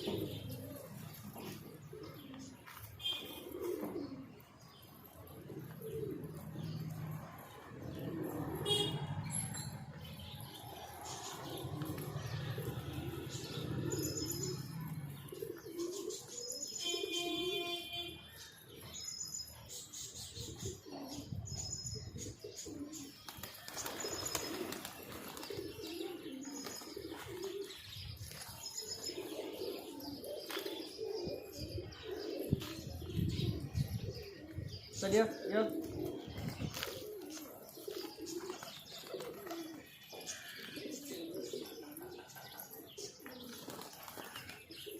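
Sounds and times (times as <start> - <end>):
pigeons cooing: 0.0 - 44.9
wings flapping: 23.3 - 25.7, 43.5 - 44.6.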